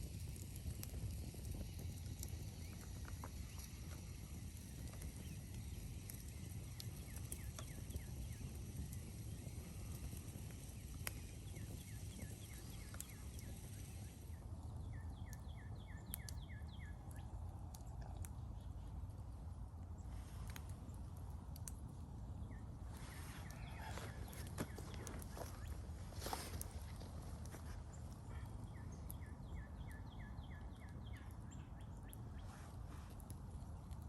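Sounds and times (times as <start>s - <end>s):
low outdoor rumble: 0.0s - 34.0s
faint clicks: 0.8s - 14.1s, 16.1s - 16.4s, 20.4s - 21.9s.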